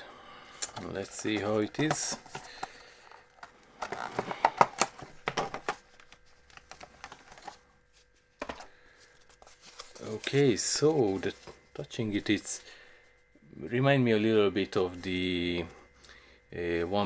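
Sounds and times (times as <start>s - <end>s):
rustling: 5.8s - 11.6s.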